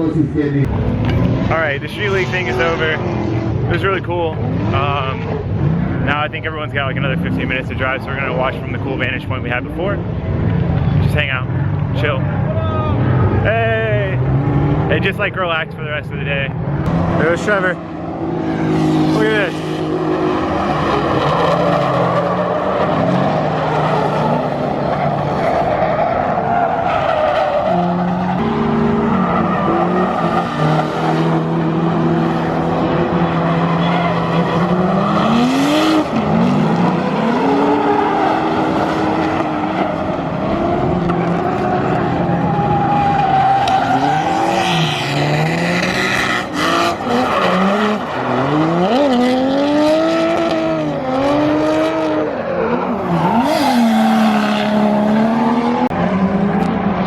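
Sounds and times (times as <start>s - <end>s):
car engines revving: 0.0s - 57.0s
tyre squeal: 42.4s - 45.2s.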